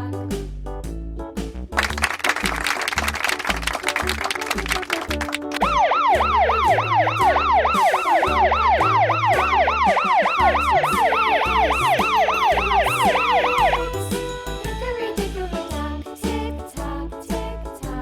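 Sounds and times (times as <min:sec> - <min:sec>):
background music with bass: 0:00.0 - 0:18.0
siren yelping: 0:05.6 - 0:14.0.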